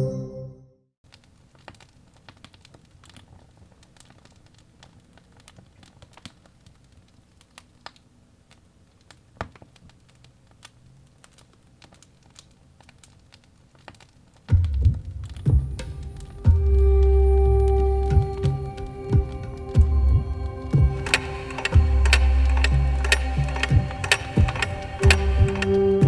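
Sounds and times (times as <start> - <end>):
campfire crackling and popping: 1.0 - 26.0
faint low rumble: 14.5 - 26.0.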